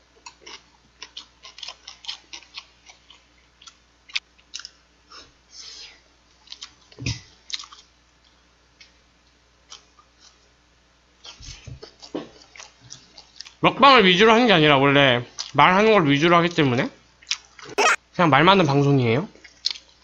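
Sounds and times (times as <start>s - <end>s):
chewing with wet smacking: 0.2s - 4.8s, 6.4s - 9.0s, 11.2s - 13.6s, 15.3s - 15.6s, 17.2s - 17.7s, 19.4s - 20.0s.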